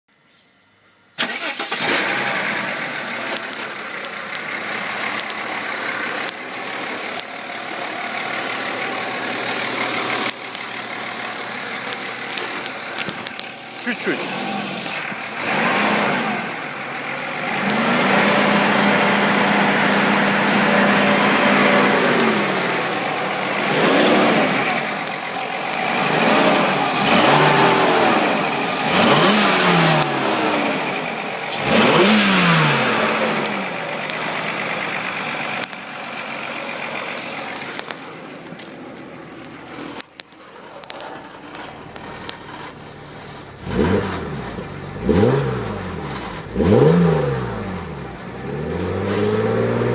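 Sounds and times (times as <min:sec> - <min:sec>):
car engine revving: 0:01.2 - 0:49.9.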